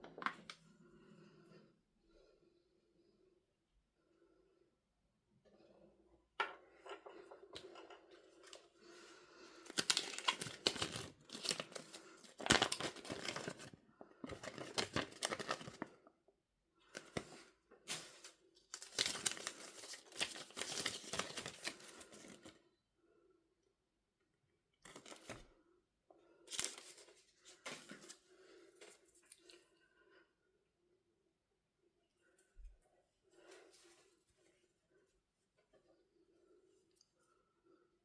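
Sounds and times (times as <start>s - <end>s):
packaging torn and crinkled: 9.7s - 13.7s, 14.3s - 15.9s, 17.9s - 22.3s.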